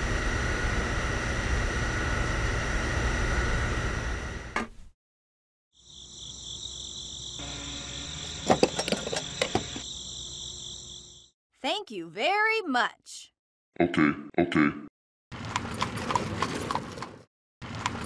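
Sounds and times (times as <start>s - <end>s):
mechanical hum: 0.0s - 4.9s, 6.7s - 11.2s
high insect-like chirring: 5.8s - 11.3s.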